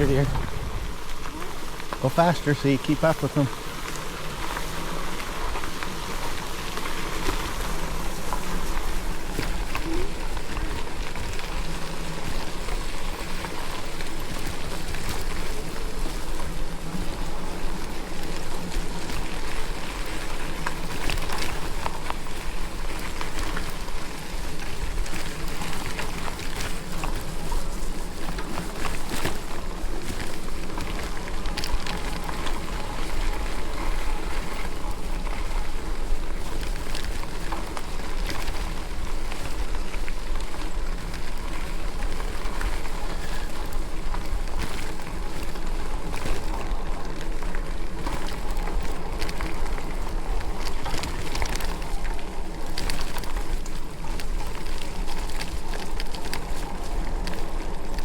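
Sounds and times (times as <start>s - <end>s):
wind rumbling on microphone: 0.0s - 2.0s
tyres rolling on muddy trail: 0.0s - 58.0s.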